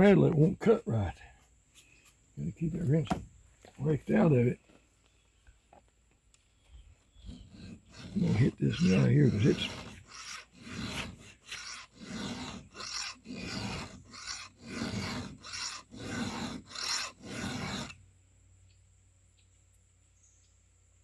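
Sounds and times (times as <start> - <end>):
file rasping on chainsaw chain: 7.2 - 18.0.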